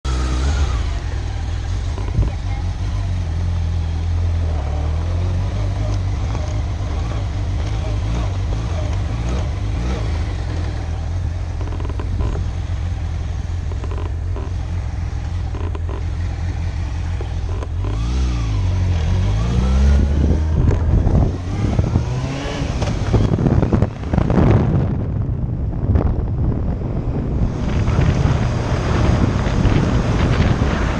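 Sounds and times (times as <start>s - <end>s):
motorcycle engine running: 0.0s - 30.9s
wind on microphone: 19.1s - 30.9s.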